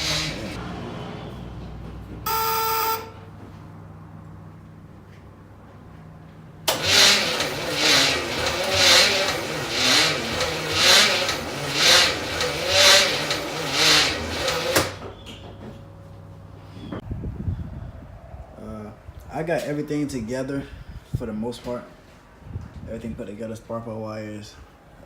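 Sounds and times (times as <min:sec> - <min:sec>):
starter motor slowly cranking: 0:00.0 - 0:00.6, 0:06.7 - 0:15.0.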